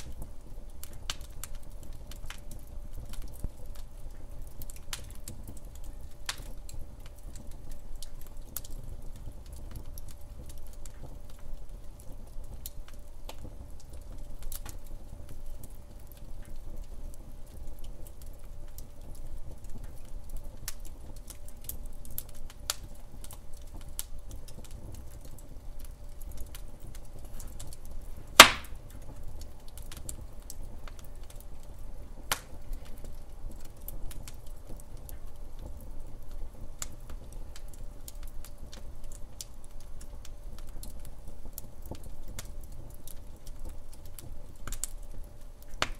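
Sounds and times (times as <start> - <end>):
fire crackling snaps: 0.0 - 45.9
wood fire rumbling: 0.0 - 45.9
loud sharp pop of fire: 28.3 - 28.8.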